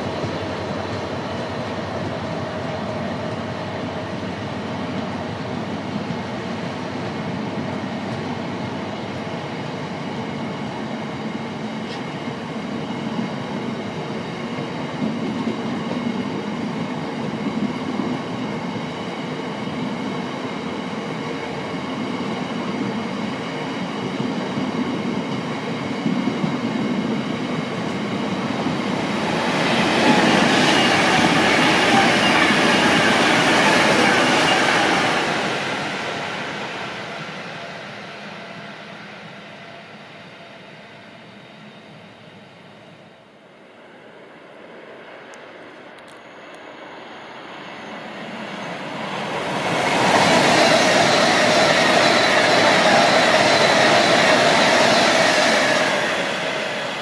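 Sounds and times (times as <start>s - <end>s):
freight train wheels rumbling: 0.0s - 40.6s, 47.8s - 57.0s
faint ringing tones: 46.0s - 49.1s.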